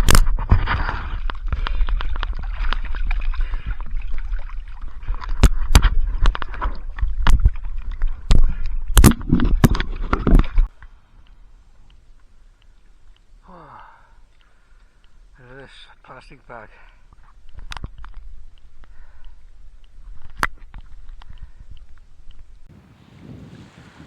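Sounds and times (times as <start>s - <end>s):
wind rumbling on microphone: 0.0s - 10.7s, 19.6s - 24.0s
oars knocking and splashing: 0.0s - 11.3s, 16.9s - 22.5s.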